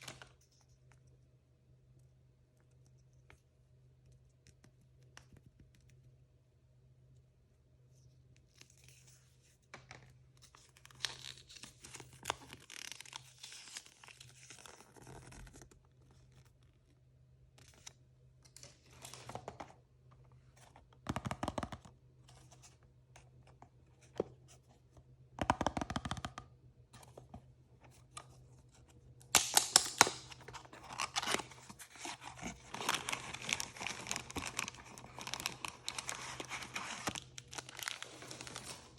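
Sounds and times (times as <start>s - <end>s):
packaging torn open and crinkled: 10.8s - 15.4s, 29.3s - 38.9s.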